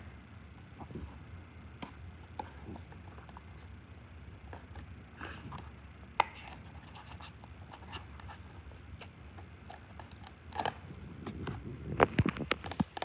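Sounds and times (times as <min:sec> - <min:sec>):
packaging clicks and rustles: 0:09.0 - 0:13.0.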